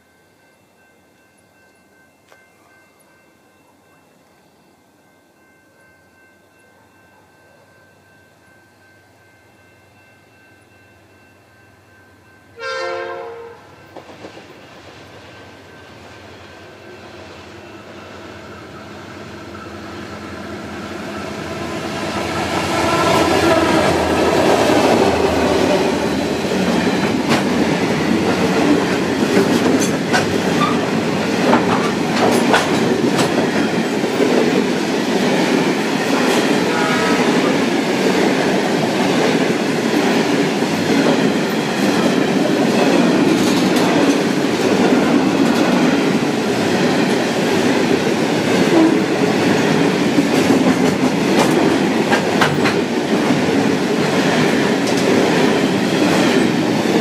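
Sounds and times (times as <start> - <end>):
diesel train passing: 4.9 - 57.0
wheels clicking over rail joints: 22.3 - 34.7, 48.8 - 57.0.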